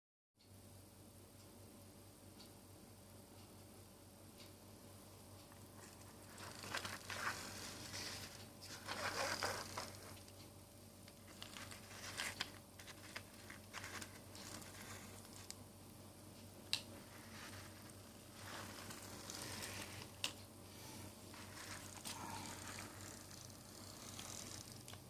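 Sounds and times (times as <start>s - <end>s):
toys rustling and scraping: 5.8s - 10.4s, 11.3s - 15.5s, 17.0s - 20.2s, 20.8s - 25.0s.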